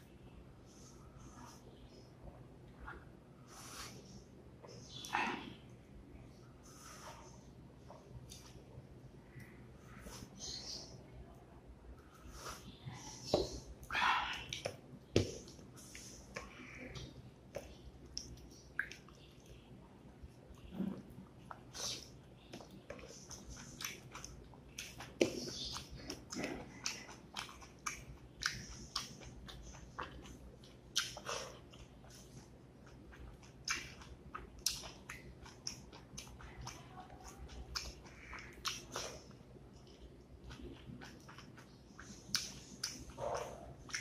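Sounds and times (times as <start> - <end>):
mouth chewing food: 12.0 - 44.0.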